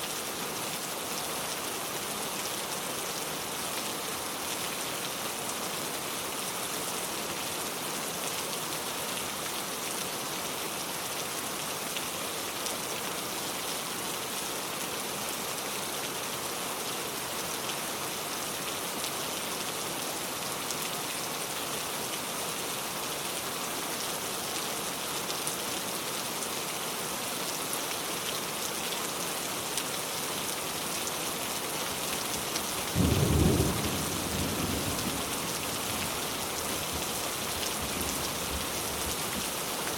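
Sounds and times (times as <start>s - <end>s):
rain on a car: 27.4s - 39.9s.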